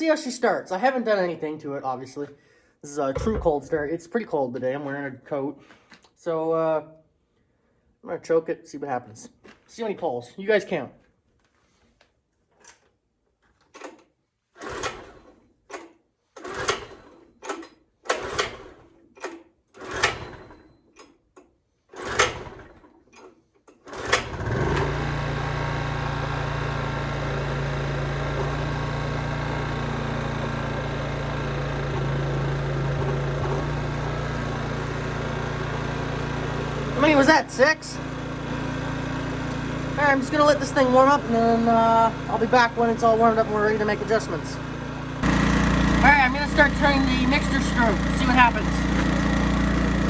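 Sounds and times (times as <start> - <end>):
recoil starter pulls: 12.5 - 50.0
generator engine running: 24.0 - 50.0.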